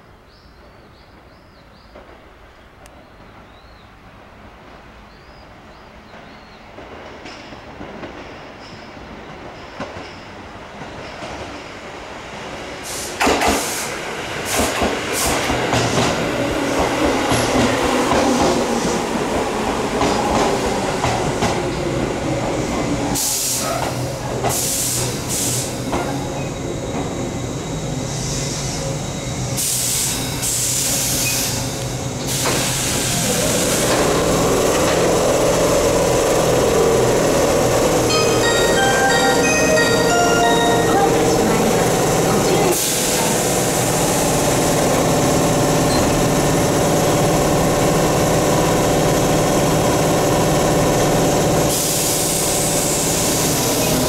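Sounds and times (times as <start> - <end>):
electric train running hum: 13.3 - 54.0.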